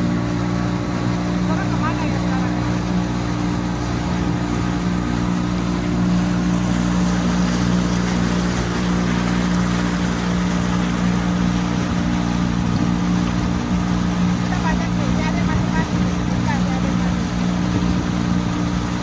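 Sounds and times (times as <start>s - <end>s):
motorboat engine droning: 0.0s - 19.0s
water rushing past hull: 0.0s - 19.0s.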